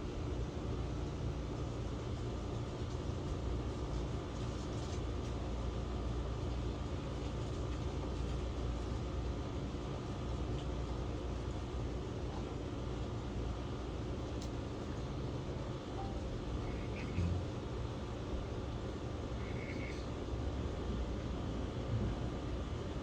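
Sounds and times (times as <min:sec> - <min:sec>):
low rumble of passing vehicles: 0:16.3 - 0:23.0.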